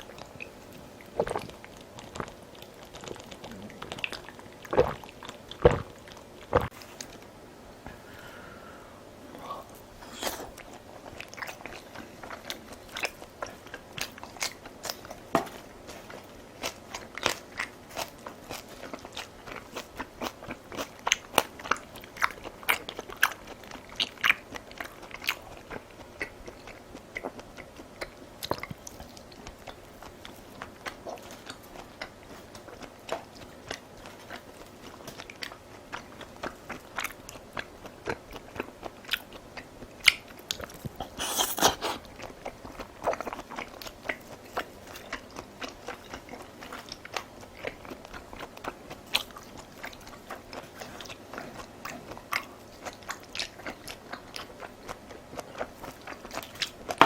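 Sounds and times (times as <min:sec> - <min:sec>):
crunchy food being chewed: 0:00.0 - 0:07.3, 0:09.7 - 0:57.0
wet mouth clicks: 0:40.0 - 0:42.0.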